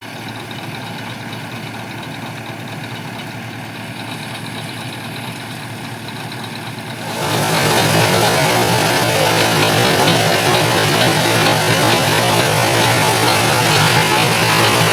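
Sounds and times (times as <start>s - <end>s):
tractor diesel engine idling: 0.0s - 14.9s
loud noisy sound: 6.9s - 14.9s.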